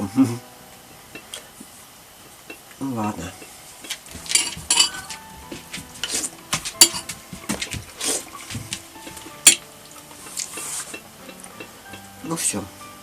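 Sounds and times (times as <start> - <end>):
metal kitchenware clinking on dishes: 3.4 - 5.2, 6.0 - 7.8, 9.0 - 9.7.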